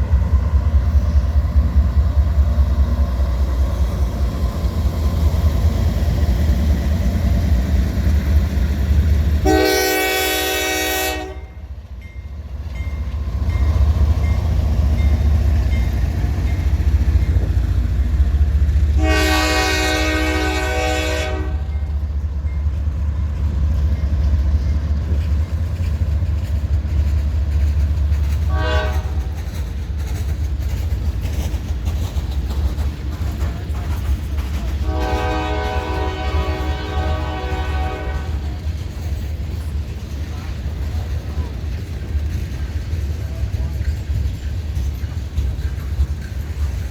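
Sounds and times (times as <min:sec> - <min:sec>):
low rumble of train: 0:00.0 - 0:46.9
locomotive air horn blasts: 0:09.4 - 0:11.6, 0:19.0 - 0:21.8, 0:28.5 - 0:29.3, 0:34.8 - 0:38.4.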